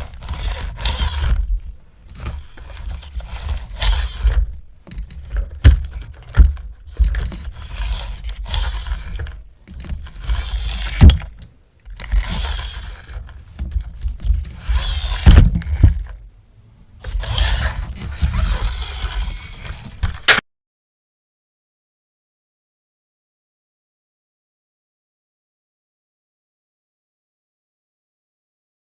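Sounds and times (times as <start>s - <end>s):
sharp clicks and knocks: 2.1s - 16.2s.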